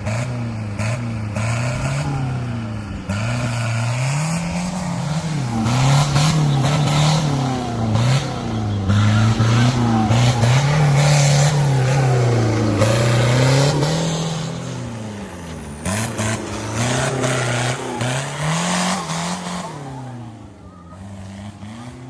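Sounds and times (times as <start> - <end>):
off-road engine revving: 0.0 - 22.0.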